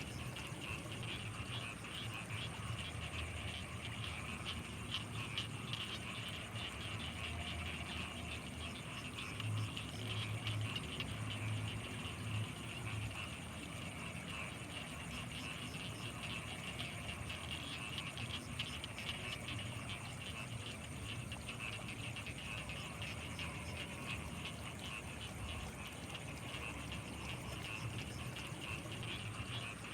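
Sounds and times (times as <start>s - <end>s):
frogs calling: 0.0s - 29.9s
high insect whine: 0.0s - 29.9s.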